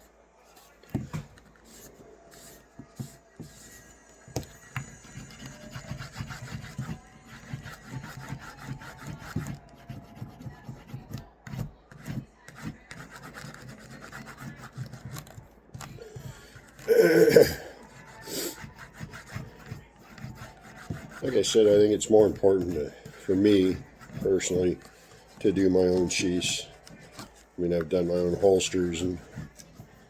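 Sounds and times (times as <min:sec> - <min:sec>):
hand rubbing leather edge: 0:16.7 - 0:30.0.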